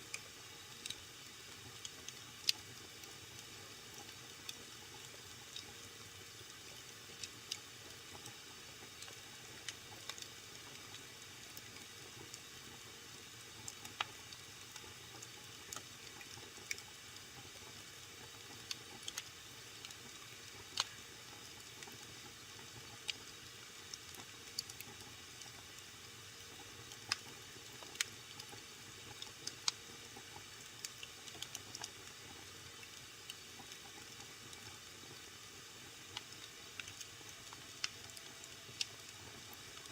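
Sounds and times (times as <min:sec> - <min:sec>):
fire crackles and pops: 0:00.1 - 0:39.9
wood fire hissing: 0:13.5 - 0:39.9.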